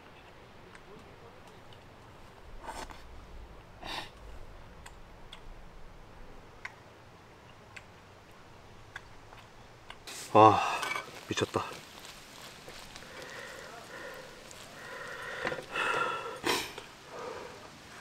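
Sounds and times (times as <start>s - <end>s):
utensil scraping: 2.5s - 3.1s.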